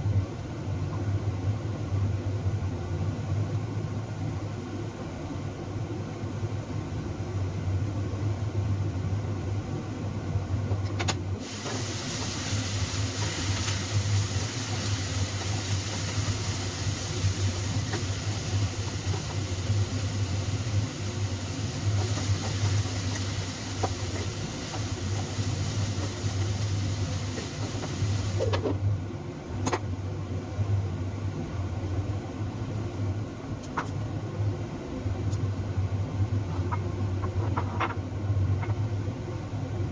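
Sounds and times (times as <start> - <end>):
loud hiss: 11.4 - 28.5.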